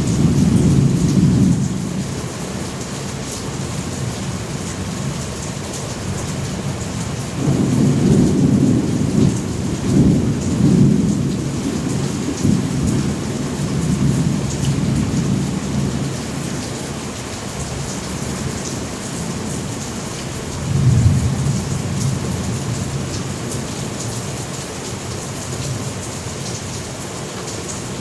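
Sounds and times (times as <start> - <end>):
thunder rumbling: 0.0 - 2.1, 7.4 - 16.2, 20.6 - 23.6
rain hissing: 0.0 - 28.0.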